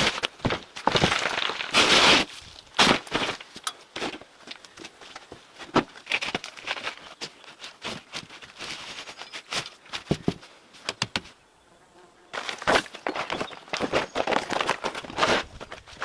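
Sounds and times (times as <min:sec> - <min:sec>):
scraping: 0:00.0 - 0:05.0.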